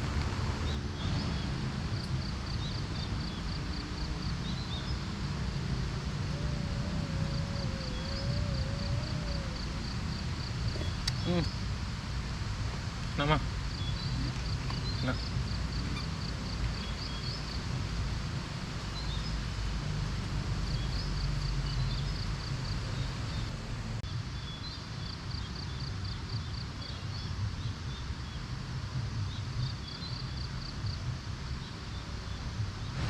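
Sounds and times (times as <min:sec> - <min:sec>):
low wind rumble: 0:00.0 - 0:33.0.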